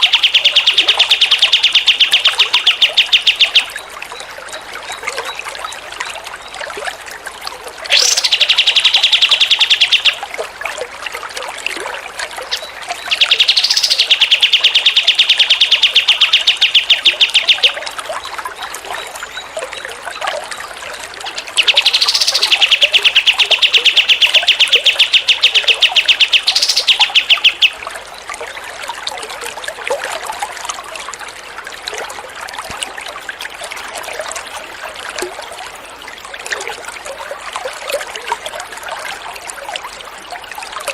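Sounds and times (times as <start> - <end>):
songbird singing fast trill: 0.0 - 3.8, 7.9 - 10.2, 12.5 - 17.9, 21.3 - 27.9
trickling water: 0.0 - 40.9.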